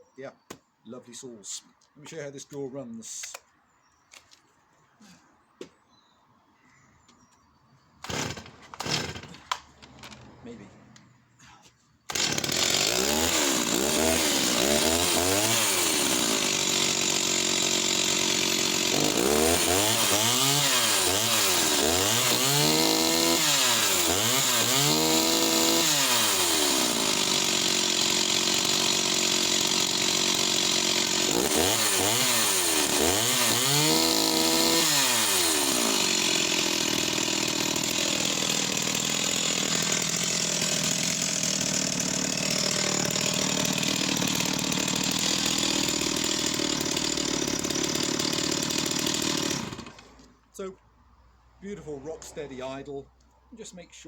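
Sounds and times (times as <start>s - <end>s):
chainsaw revving and idling: 8.0s - 10.7s, 12.1s - 50.7s.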